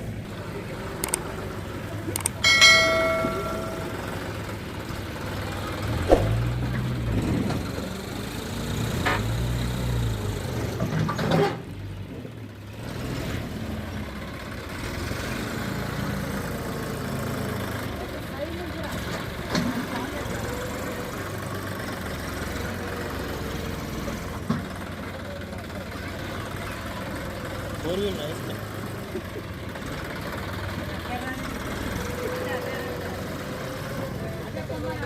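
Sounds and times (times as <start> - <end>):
tractor diesel engine revving: 12.6 - 35.0.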